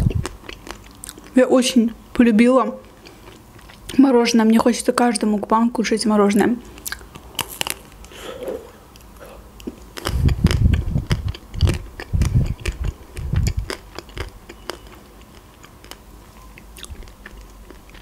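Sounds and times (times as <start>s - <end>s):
chewing with clicks and crackles: 0.0s - 1.4s, 2.8s - 4.0s, 6.6s - 8.2s, 8.9s - 18.0s.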